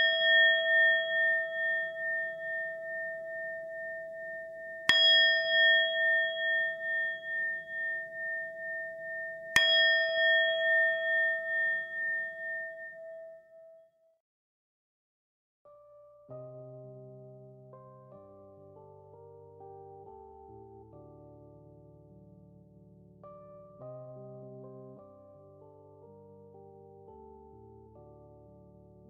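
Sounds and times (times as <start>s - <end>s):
singing bowl ringing: 0.0s - 13.9s.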